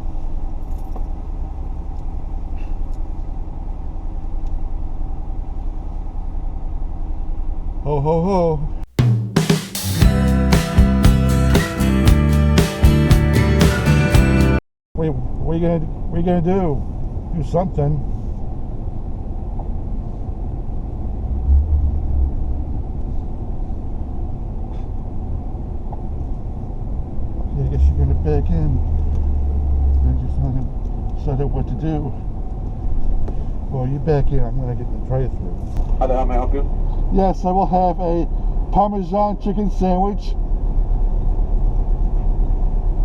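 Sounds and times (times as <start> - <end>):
car rumbling slowly: 0.0 - 8.8, 15.2 - 43.0
car engine running: 10.0 - 14.6.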